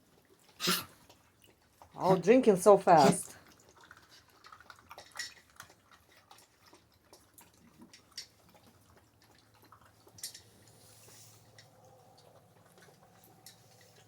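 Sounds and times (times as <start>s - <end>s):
puppy lapping water: 0.0s - 14.0s.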